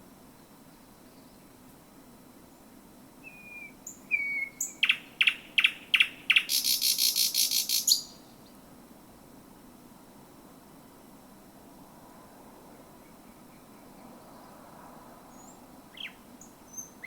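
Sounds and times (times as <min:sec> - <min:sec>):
nightingale singing: 0:03.2 - 0:08.6, 0:15.3 - 0:17.0.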